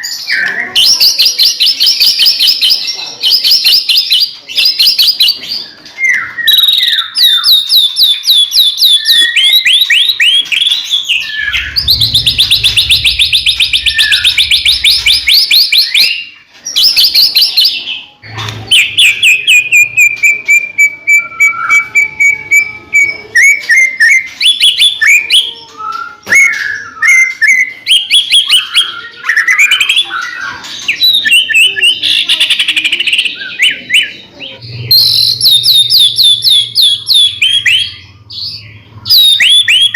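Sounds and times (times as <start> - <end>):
bird singing trills: 4.7 - 16.4, 17.0 - 39.9
falling bird whistle: 11.1 - 16.1.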